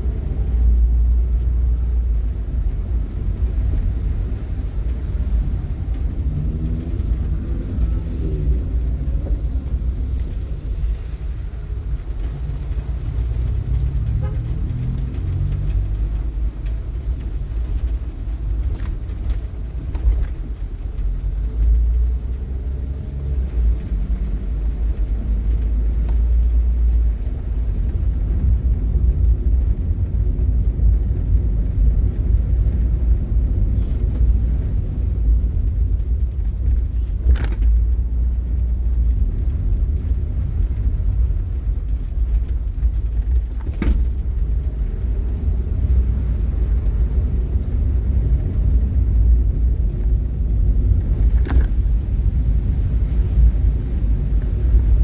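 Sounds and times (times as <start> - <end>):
vehicle rumble on the move: 0.0 - 55.0.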